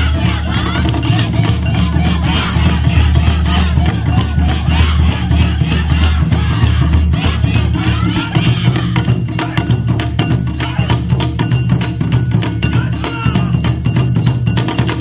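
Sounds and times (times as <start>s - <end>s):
sustained low bass: 0.0s - 8.9s
wood-block-like percussion strikes: 0.0s - 15.0s.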